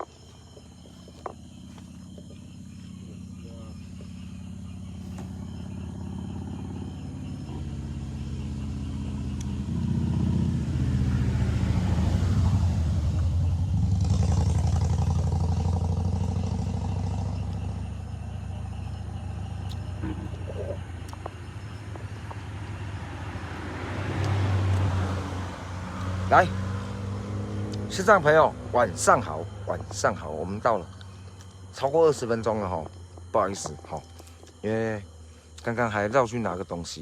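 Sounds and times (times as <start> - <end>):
vehicle engine droning: 0.0 - 37.0.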